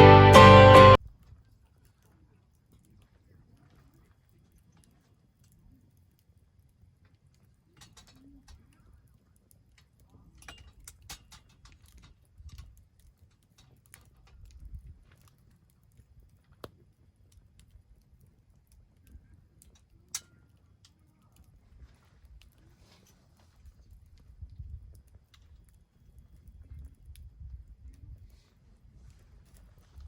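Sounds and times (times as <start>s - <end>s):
campfire crackling and popping: 9.4s - 22.6s, 23.4s - 28.5s, 29.1s - 30.0s.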